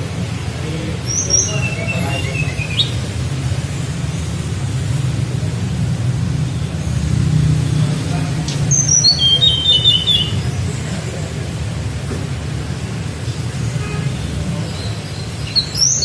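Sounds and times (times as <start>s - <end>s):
bird singing flute-like phrase: 1.1s - 3.0s, 8.8s - 10.5s.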